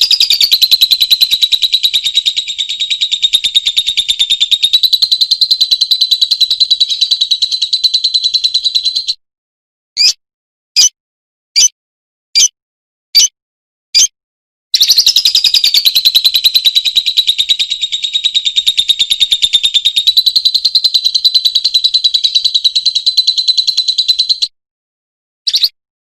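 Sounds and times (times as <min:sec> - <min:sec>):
lovebird chirping and trilling: 0:00.0 - 0:09.2, 0:10.0 - 0:10.2, 0:10.8 - 0:11.0, 0:11.6 - 0:11.8, 0:12.4 - 0:12.6, 0:13.2 - 0:13.4, 0:14.8 - 0:24.5, 0:25.5 - 0:25.8.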